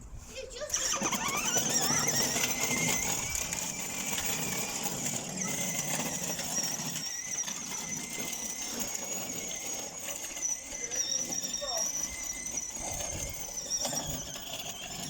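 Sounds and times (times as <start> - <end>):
high-pitched squeal: 0.7 - 15.0.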